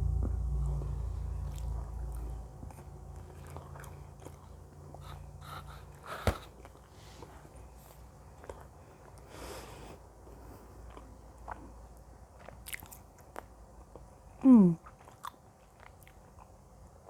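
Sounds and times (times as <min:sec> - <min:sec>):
low hum: 0:00.0 - 0:09.2.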